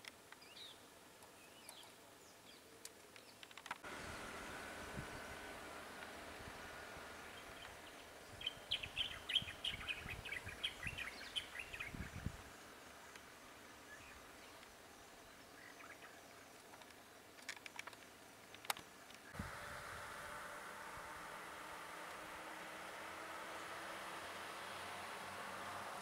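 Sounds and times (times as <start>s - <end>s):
bird chirping: 0.4s - 3.5s, 7.0s - 19.7s.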